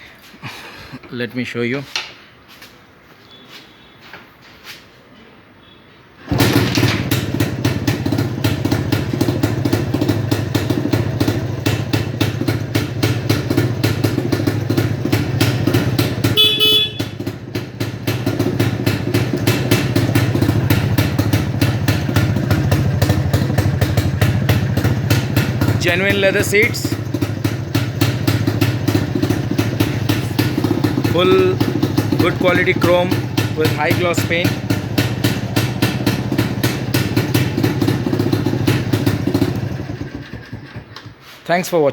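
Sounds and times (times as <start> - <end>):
motorcycle engine kick-started: 6.2 - 41.5
motorcycle horn: 15.0 - 20.2.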